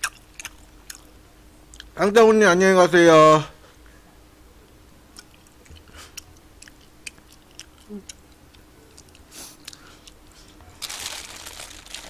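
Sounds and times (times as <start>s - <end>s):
chewing and mouth clicks: 0.0s - 1.1s, 1.7s - 2.0s, 5.1s - 10.5s.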